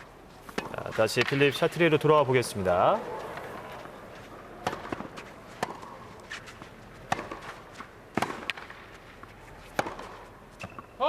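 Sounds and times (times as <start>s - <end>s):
footsteps on clay court: 0.0s - 10.9s
racket striking tennis ball: 0.4s - 1.4s, 4.6s - 10.9s
quiet crowd murmur: 2.4s - 8.1s.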